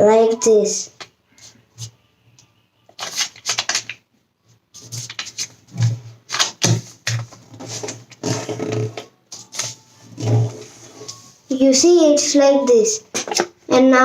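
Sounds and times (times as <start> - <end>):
paper being folded and creased: 3.0 - 4.0, 4.8 - 8.8.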